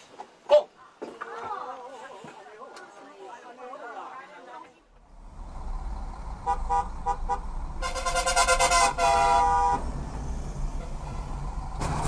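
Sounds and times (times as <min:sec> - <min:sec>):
road and engine rumble: 0:04.7 - 0:12.0
car horn honking: 0:06.4 - 0:09.9.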